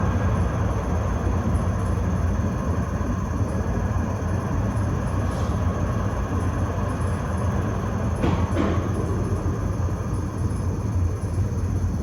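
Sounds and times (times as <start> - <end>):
tram wheels rumbling on rails: 5.3 - 12.0.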